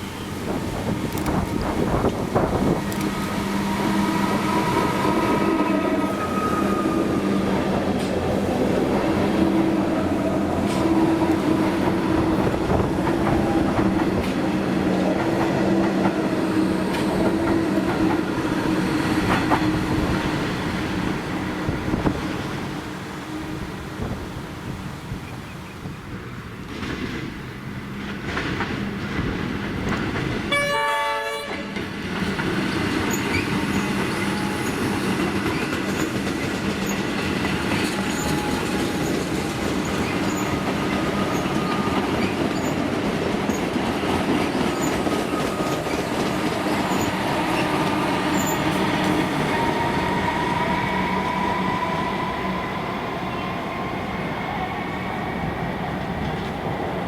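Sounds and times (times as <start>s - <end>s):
train wheels rumbling over rails: 0.0s - 57.0s
train horn: 2.9s - 7.6s, 30.5s - 31.9s, 33.7s - 35.2s, 37.5s - 39.5s.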